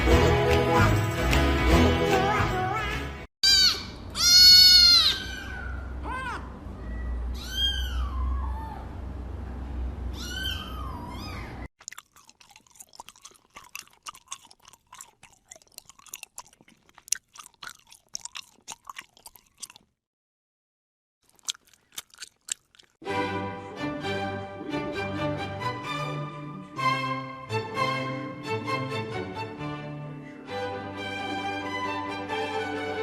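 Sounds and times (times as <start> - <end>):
cat meowing: 3.5 - 8.8, 10.2 - 11.7
cat chewing crunchy food: 11.8 - 20.0, 21.2 - 23.0.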